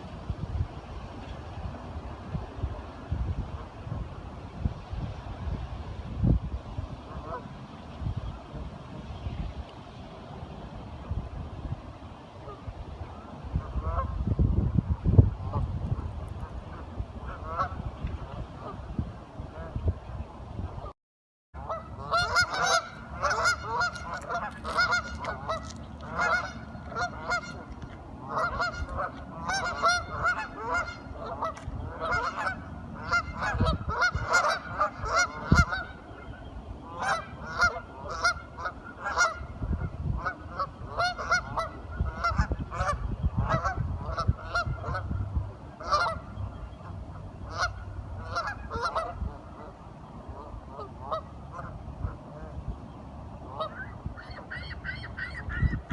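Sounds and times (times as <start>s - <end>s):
flock of ducks quacking: 7.1s - 7.5s, 16.4s - 18.8s, 21.6s - 52.6s, 53.4s - 55.9s.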